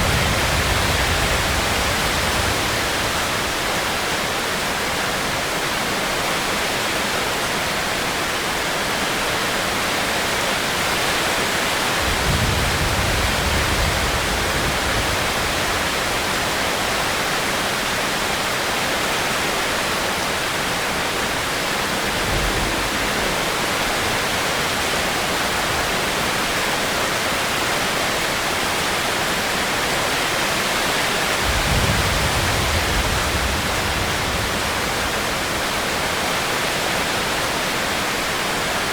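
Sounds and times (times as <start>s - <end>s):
heavy rain hissing: 0.0s - 4.8s, 29.8s - 38.9s
low rumbles: 21.8s - 25.2s.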